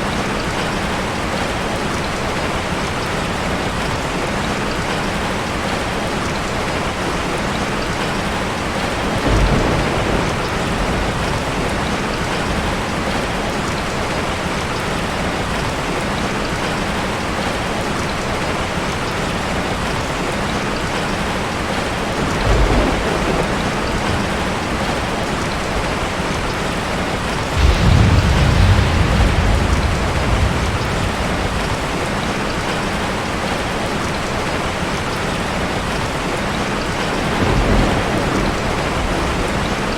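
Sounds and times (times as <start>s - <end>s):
heavy rain: 0.0s - 39.9s
thunder rolling: 9.2s - 13.2s, 22.2s - 33.5s, 37.1s - 39.9s.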